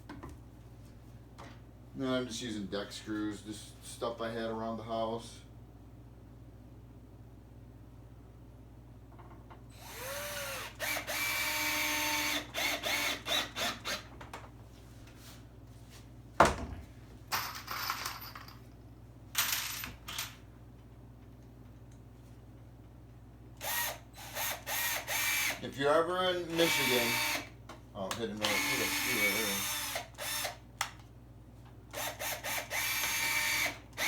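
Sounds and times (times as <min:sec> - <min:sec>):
power drill driving screws: 0:09.8 - 0:14.1, 0:23.6 - 0:25.6, 0:26.5 - 0:27.5, 0:28.4 - 0:30.6, 0:32.0 - 0:34.0.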